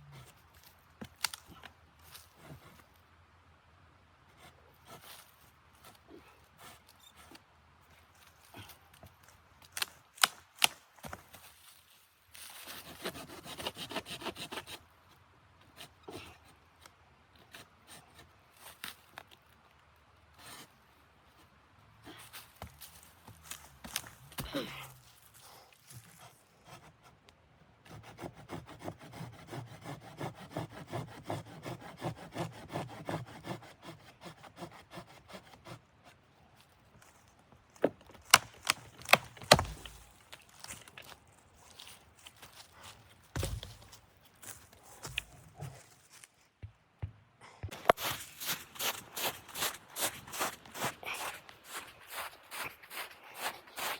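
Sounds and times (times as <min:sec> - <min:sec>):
hand saw cutting wood: 0:27.9 - 0:35.8
rapid rasping on wood: 0:28.0 - 0:35.7.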